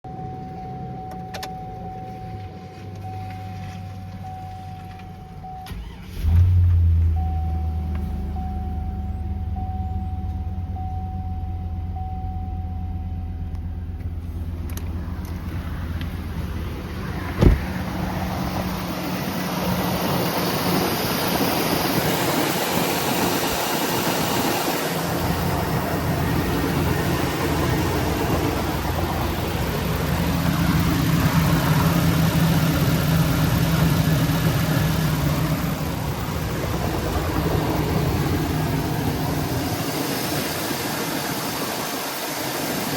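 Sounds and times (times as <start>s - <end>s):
car engine idling: 0.4s - 42.9s
sharp thump: 17.2s - 18.1s.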